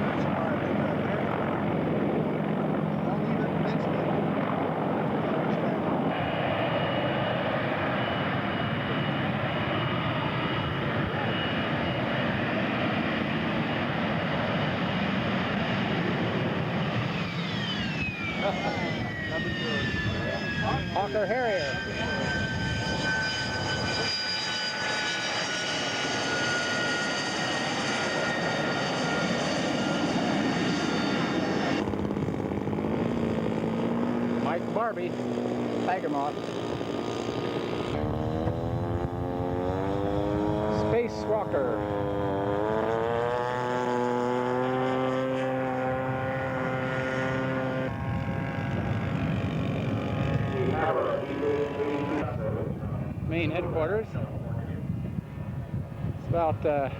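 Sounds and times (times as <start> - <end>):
model jet engine whine: 0.0 - 56.9.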